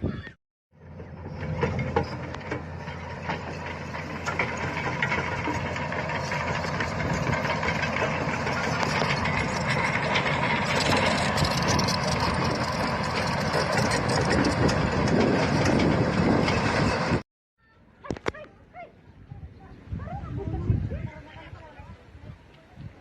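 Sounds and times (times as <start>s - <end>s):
backhoe diesel engine running: 0.0s - 17.2s
rattle of clicks and clanks: 0.8s - 17.2s.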